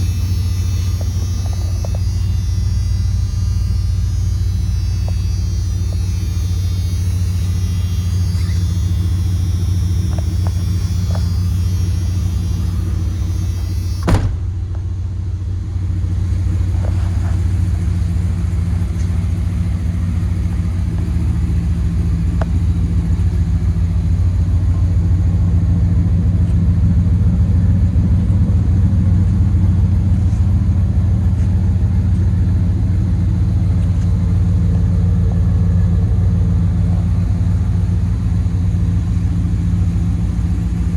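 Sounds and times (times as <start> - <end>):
sharp click: 0.0 - 14.5
pickup engine running: 0.0 - 40.9.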